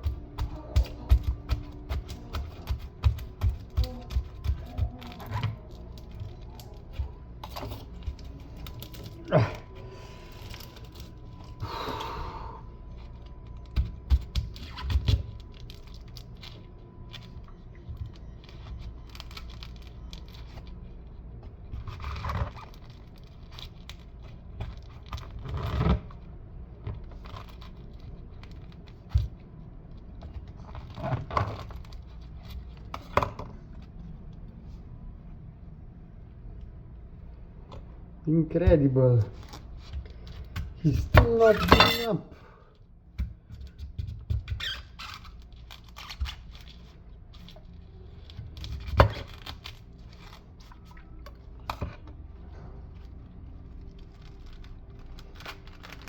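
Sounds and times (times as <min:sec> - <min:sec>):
fibre ripping: 0:44.3 - 0:51.2, 0:53.7 - 0:56.0.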